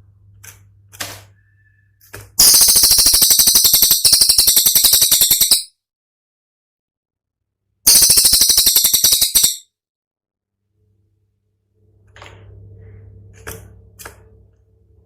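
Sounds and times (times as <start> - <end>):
songbird rattling trill: 2.4 - 5.7, 7.9 - 9.6.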